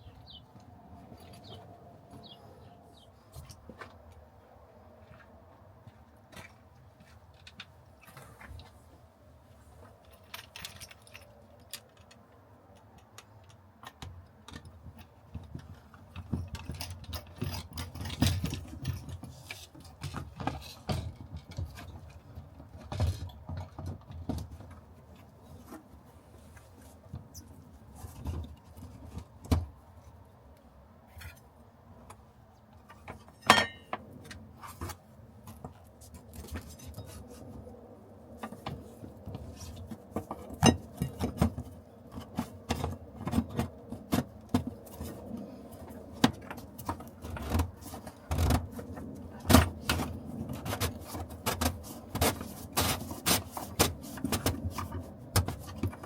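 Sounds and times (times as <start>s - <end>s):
tools and car parts clicking: 10.0s - 24.8s.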